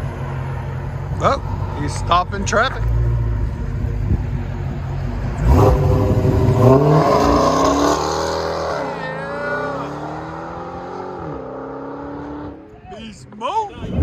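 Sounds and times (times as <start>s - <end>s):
car engine revving: 0.0s - 12.8s.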